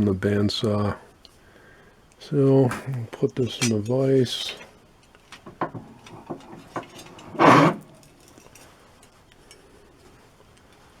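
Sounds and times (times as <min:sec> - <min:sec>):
small metal clicks and knocks: 0:03.2 - 0:09.7
vise scrape: 0:06.1 - 0:08.0.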